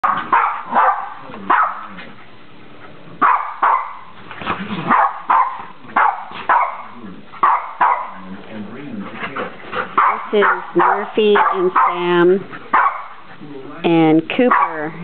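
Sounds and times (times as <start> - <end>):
dogs barking: 0.0 - 2.2, 3.1 - 8.3, 9.6 - 13.4, 14.4 - 15.0.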